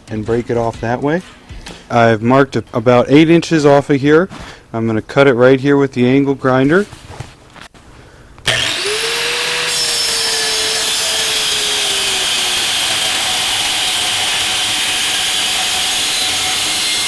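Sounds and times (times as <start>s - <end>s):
angle grinder cutting steel: 8.5s - 17.0s.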